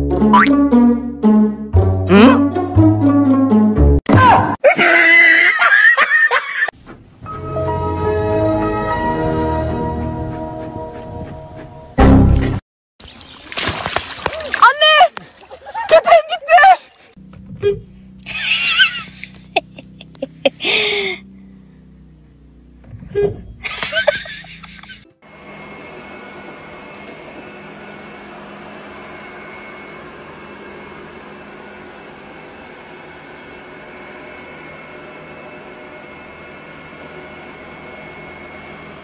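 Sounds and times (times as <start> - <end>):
people laughing: 4.7 - 6.7, 15.5 - 17.0, 18.3 - 20.7, 23.7 - 25.0
car engine hum: 17.2 - 25.0
robot vacuum cleaner whirring: 25.3 - 39.0.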